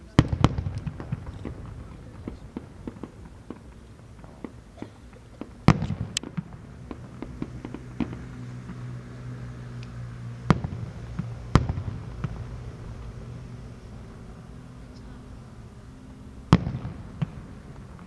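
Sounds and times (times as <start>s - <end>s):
fireworks loud bangs: 0.0s - 14.5s, 15.3s - 18.0s
small firework pops: 0.2s - 9.0s, 16.5s - 18.0s.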